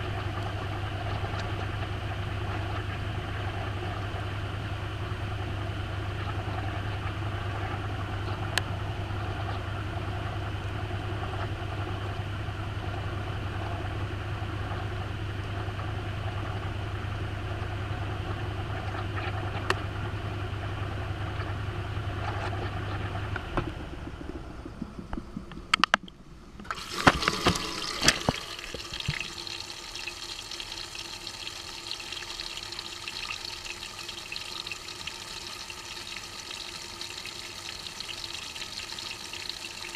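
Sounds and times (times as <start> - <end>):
sharp clicks and knocks: 24.8 - 29.3
washing machine motor humming: 26.6 - 39.9
water rushing into tub: 26.6 - 39.9.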